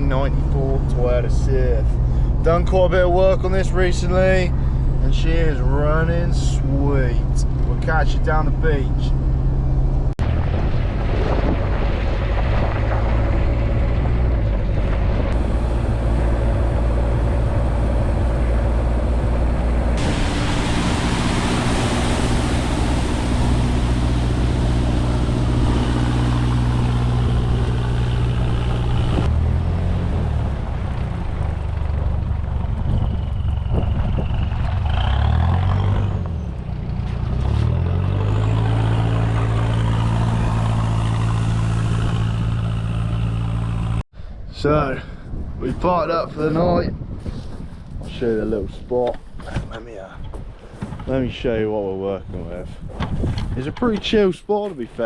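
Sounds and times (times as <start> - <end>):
road noise: 0.0 - 55.0
truck engine running: 7.4 - 44.0.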